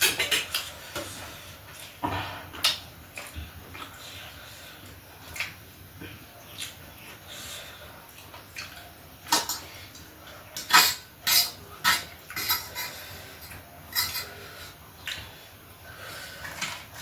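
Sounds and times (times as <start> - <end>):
cutlery clinking against dishes: 10.6 - 14.3.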